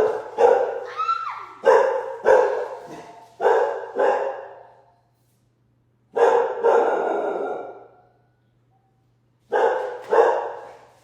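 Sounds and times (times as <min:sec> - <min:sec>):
dog barking: 0:00.0 - 0:00.8, 0:01.6 - 0:04.7, 0:06.1 - 0:08.0, 0:09.5 - 0:10.8.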